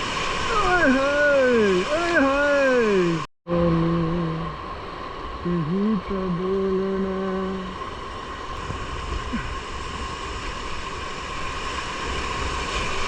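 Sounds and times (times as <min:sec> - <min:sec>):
whitewater rushing in rapids: 0:00.0 - 0:03.3.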